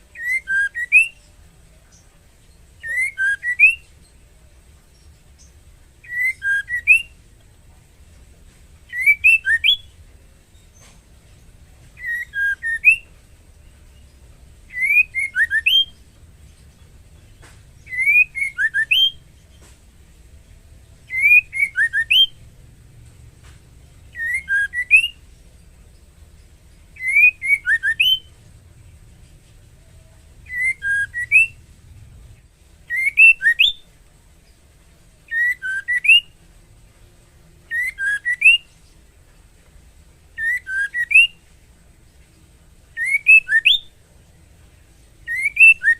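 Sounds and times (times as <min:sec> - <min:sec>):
bird whistled call: 0:00.2 - 0:01.2, 0:02.8 - 0:03.9, 0:06.0 - 0:07.2, 0:08.9 - 0:10.0, 0:12.0 - 0:13.1, 0:14.7 - 0:16.0, 0:17.8 - 0:19.2, 0:21.1 - 0:22.4, 0:24.1 - 0:25.2, 0:27.0 - 0:28.4, 0:30.4 - 0:31.6, 0:32.9 - 0:33.9, 0:35.3 - 0:36.4, 0:37.7 - 0:38.7, 0:40.4 - 0:41.4, 0:43.0 - 0:43.9, 0:45.3 - 0:45.9.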